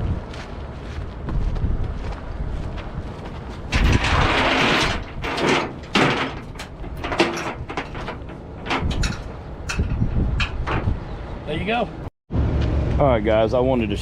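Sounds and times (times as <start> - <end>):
chain rasping drag: 3.7 - 9.9.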